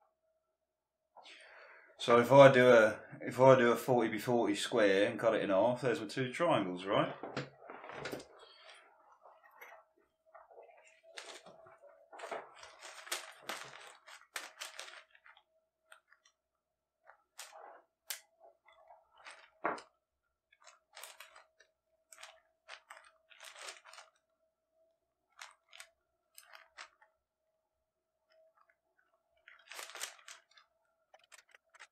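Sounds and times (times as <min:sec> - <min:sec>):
newspaper rustling: 0:06.9 - 0:16.3, 0:20.6 - 0:24.2, 0:29.4 - 0:31.9.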